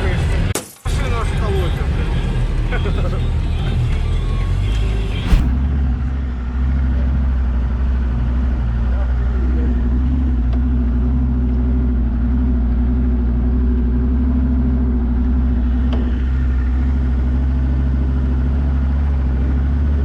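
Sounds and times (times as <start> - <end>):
off-road vehicle engine droning: 0.0 - 20.0.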